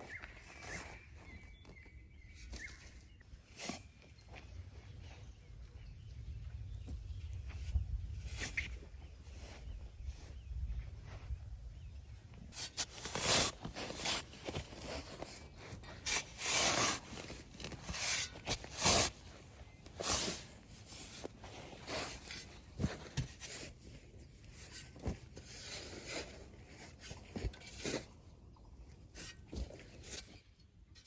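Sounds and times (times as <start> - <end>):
scraping and rubbing strokes: 12.5 - 28.2.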